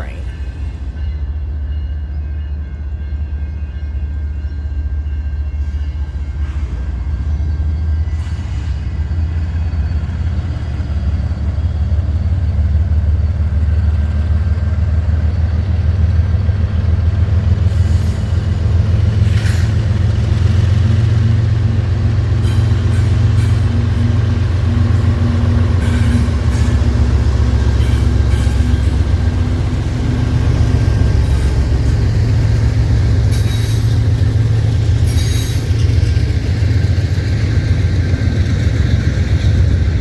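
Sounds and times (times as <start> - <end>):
freight train rumbling: 0.0 - 40.0.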